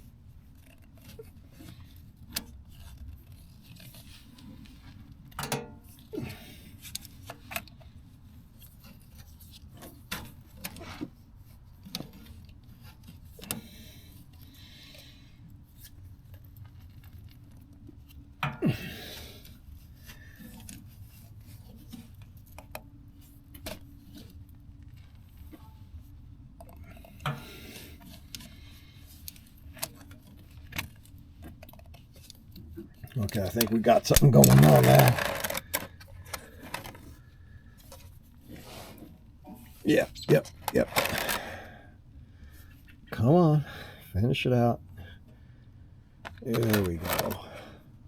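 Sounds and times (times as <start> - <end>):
hand tools clinking and scraping: 33.1 - 35.8.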